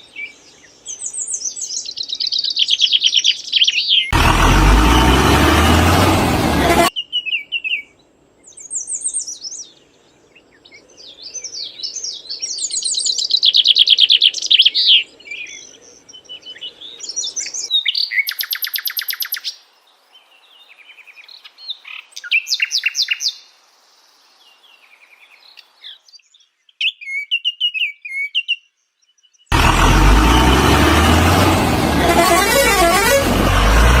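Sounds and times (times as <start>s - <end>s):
birds chirping and trilling: 0.0s - 6.0s
loud rough noise: 4.2s - 6.9s, 29.5s - 34.0s.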